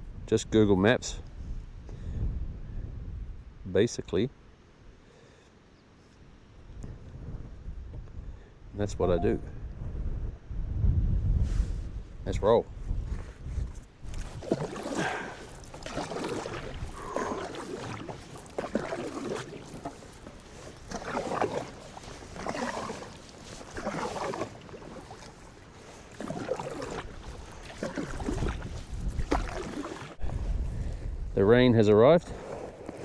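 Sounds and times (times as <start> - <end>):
wind on microphone: 0.0 - 3.6, 6.6 - 25.3, 26.2 - 33.0
paddle strokes splashing water: 14.0 - 31.0, 32.3 - 33.0.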